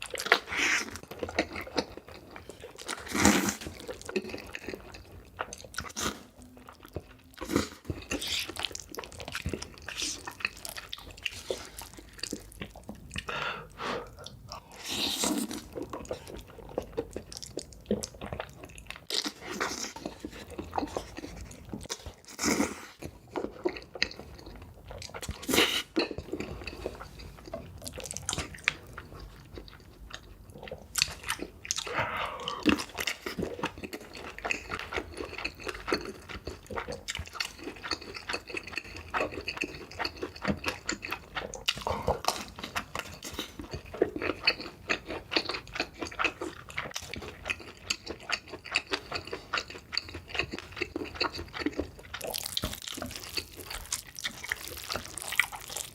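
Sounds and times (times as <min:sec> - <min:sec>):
chewing noodles mouth sounds: 0:00.0 - 0:55.9.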